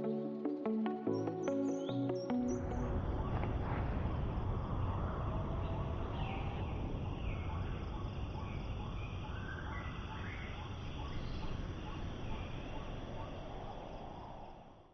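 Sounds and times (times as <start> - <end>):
low rushing noise: 2.7 - 14.9.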